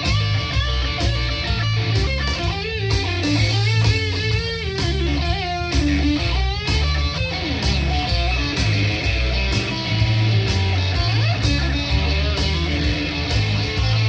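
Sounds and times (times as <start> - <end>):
electric guitar: 0.0 - 14.0
live blues band playing: 0.0 - 14.0.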